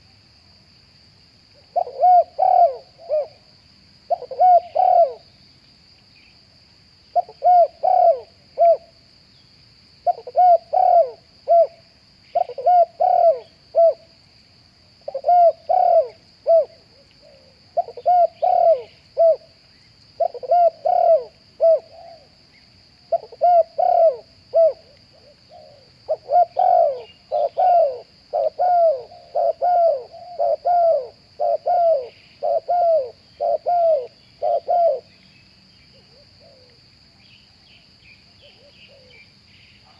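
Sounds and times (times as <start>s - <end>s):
dove cooing: 1.7s - 3.4s, 4.1s - 5.2s, 7.2s - 8.9s, 10.0s - 14.0s, 15.1s - 19.5s, 20.2s - 22.3s, 23.1s - 35.1s, 36.0s - 36.8s.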